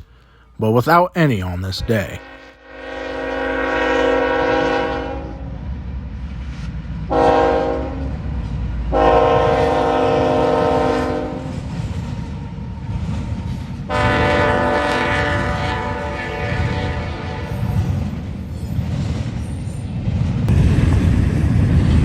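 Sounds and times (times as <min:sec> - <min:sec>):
train rumbling: 0:00.8 - 0:22.0
locomotive air horn blasts: 0:01.8 - 0:05.5, 0:07.1 - 0:08.1, 0:08.9 - 0:11.5, 0:13.9 - 0:17.8.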